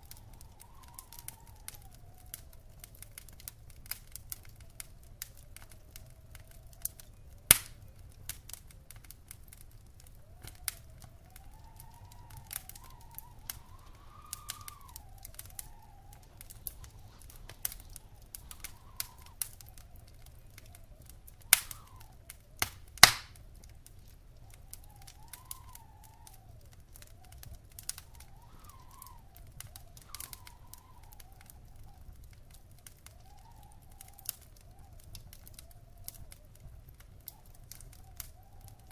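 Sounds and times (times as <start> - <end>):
faint wavering whistle: 0.0 - 2.9, 10.1 - 22.5, 24.4 - 32.2, 33.0 - 36.3
wood fire crackling: 0.0 - 38.9.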